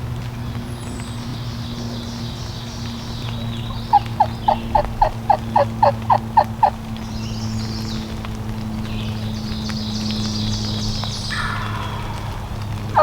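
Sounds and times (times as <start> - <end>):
turkey yelps: 3.8 - 6.8.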